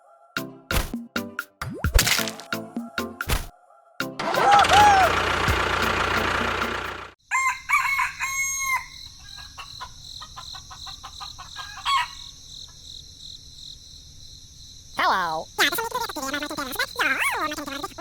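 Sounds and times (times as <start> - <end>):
rooster crowing: 3.6 - 5.3, 7.2 - 12.3
loud noisy background: 4.2 - 7.2.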